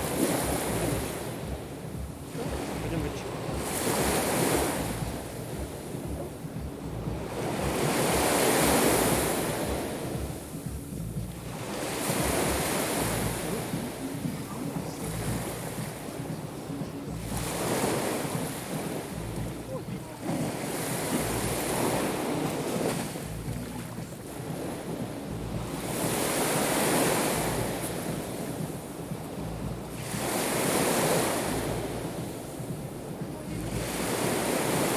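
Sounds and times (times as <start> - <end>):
sea waves breaking on shore: 0.0 - 34.9
wind buffeting microphone: 0.0 - 34.9.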